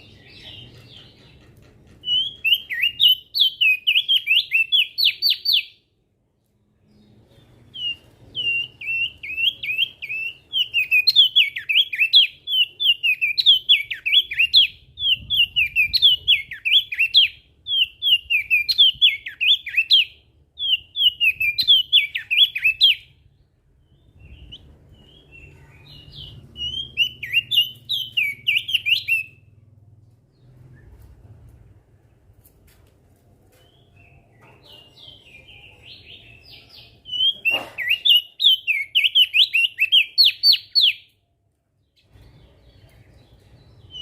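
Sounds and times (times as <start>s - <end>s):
bird singing whistled notes: 2.0s - 5.9s, 6.9s - 29.6s, 33.6s - 41.2s.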